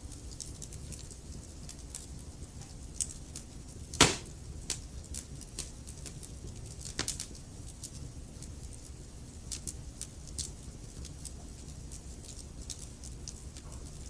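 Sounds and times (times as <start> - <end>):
wood fire crackling and popping: 0.1 - 8.8.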